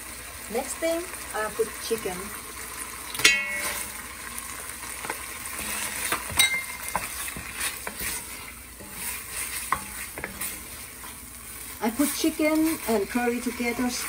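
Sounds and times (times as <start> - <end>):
chicken sizzling gently: 0.0 - 14.0
wooden spatula knocking pot: 3.2 - 3.9, 6.0 - 8.2.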